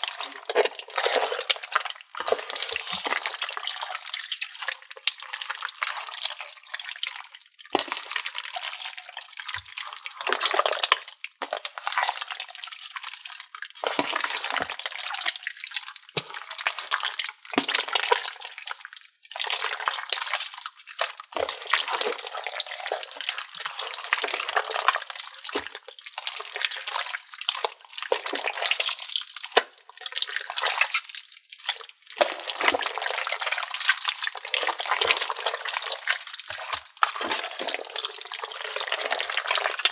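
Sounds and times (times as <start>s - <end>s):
slime squelching by hand: 0.0s - 4.2s, 21.0s - 39.9s.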